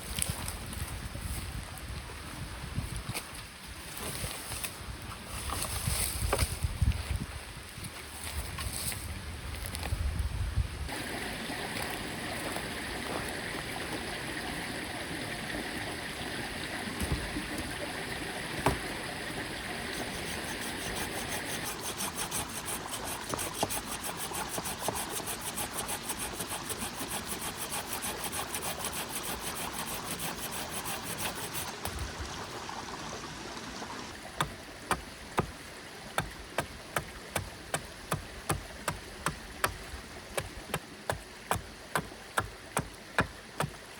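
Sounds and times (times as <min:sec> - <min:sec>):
mountain stream flowing: 0:10.9 - 0:43.9.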